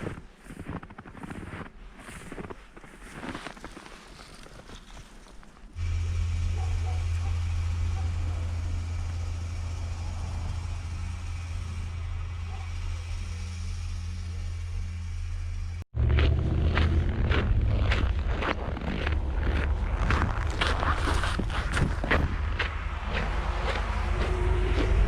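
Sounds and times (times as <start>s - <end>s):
engine idling: 5.8s - 25.0s.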